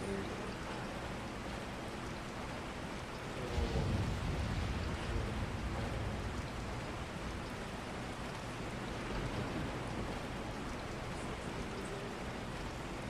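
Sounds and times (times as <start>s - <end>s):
steady rain: 0.0s - 13.0s
low rumble: 3.4s - 7.8s.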